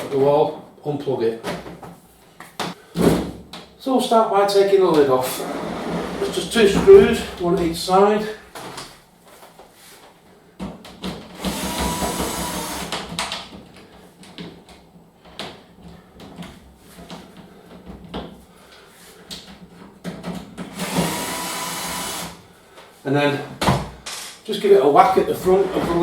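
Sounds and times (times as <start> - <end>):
power screwdriver running: 11.4 - 13.0, 20.8 - 22.4.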